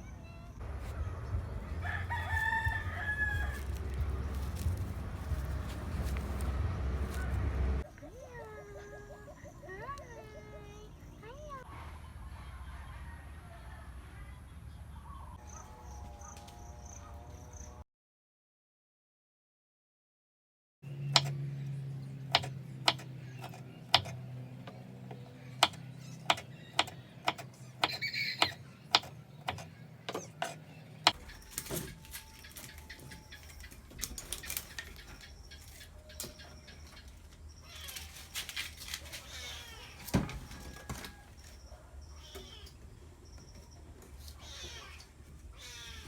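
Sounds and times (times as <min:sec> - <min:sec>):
steady low hum: 0:00.6 - 0:08.0
sharp taps and knocks: 0:22.3 - 0:32.0.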